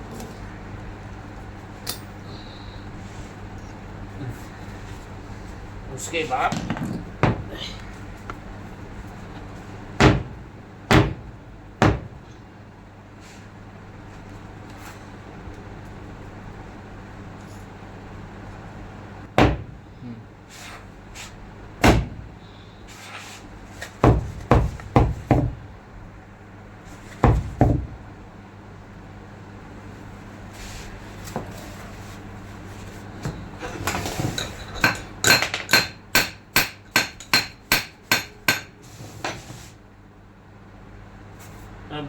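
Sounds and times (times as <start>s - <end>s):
hammer striking steel: 34.8s - 38.8s.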